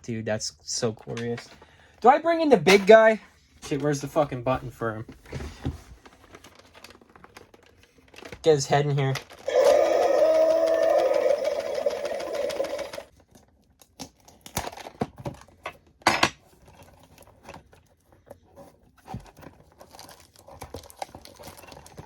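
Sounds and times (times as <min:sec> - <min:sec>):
toy packaging crinkling and tearing: 0:06.0 - 0:15.6, 0:19.2 - 0:22.0.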